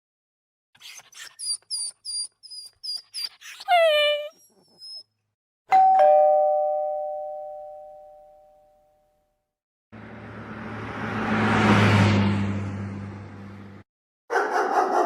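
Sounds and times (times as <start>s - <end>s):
two-tone doorbell chime: 5.7s - 9.4s
car passing by: 10.0s - 13.8s.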